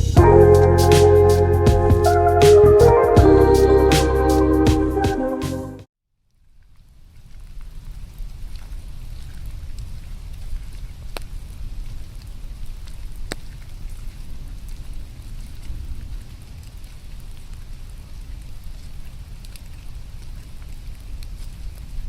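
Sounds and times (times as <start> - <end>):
low rumble: 0.0 - 5.2.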